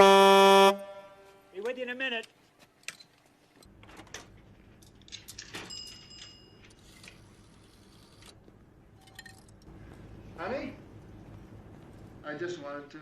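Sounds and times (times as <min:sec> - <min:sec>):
coins jingling into payphone: 0:05.1 - 0:07.2
steady low hum: 0:06.6 - 0:13.0.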